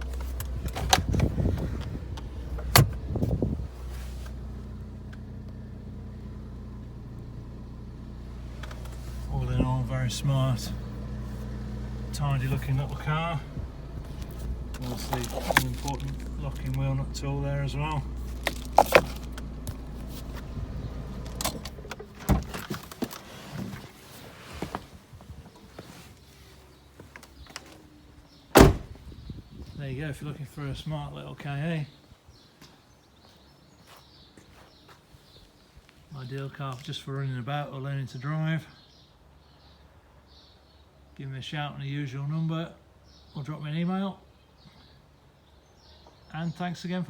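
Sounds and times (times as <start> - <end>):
car engine idling: 0.0 - 31.8
handling noise: 10.5 - 29.2
heavy thump: 28.6 - 29.1.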